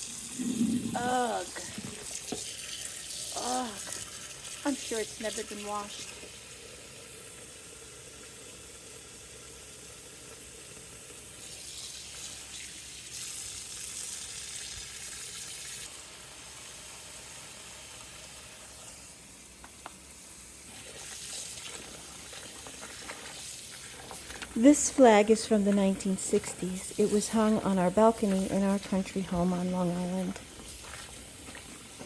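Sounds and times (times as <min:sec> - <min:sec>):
water hissing in a sink: 0:00.0 - 0:32.0
water splashing: 0:20.8 - 0:32.0.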